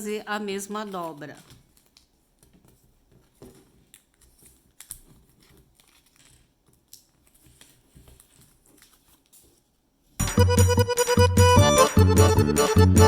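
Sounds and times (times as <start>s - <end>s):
paper rustling and crinkling: 0.8s - 10.2s.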